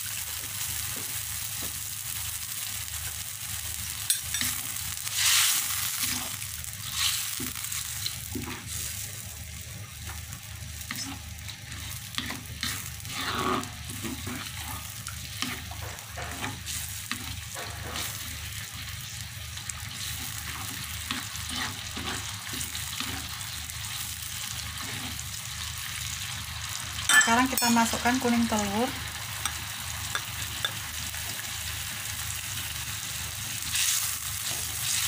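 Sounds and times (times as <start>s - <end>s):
sauce sizzling in a wok: 0.0s - 35.0s
spatula scraping and tapping pan: 10.9s - 18.4s, 29.4s - 31.4s.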